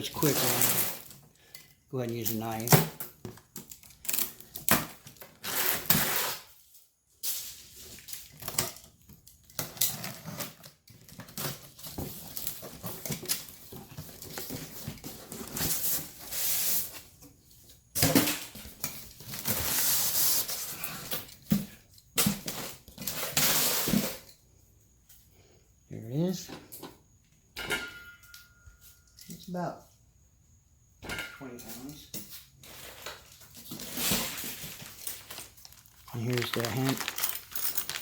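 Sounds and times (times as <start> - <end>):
cardboard tearing and rustling: 0.2 - 1.2, 3.7 - 6.5, 33.2 - 38.0
packing tape clicks and rattles: 2.1 - 6.2, 33.2 - 38.0.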